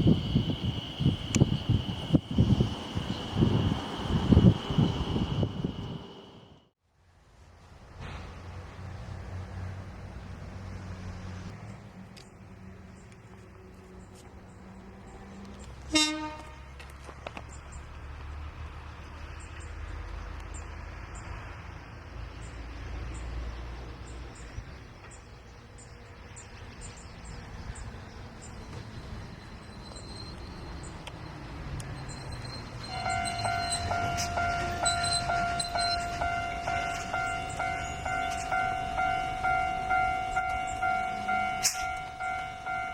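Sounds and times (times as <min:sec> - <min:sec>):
diesel locomotive engine rumble: 0:00.0 - 0:06.7, 0:07.5 - 0:42.9
freight wagons on rails: 0:00.0 - 0:06.7, 0:23.8 - 0:42.9
repeating ringing tone: 0:32.3 - 0:42.9.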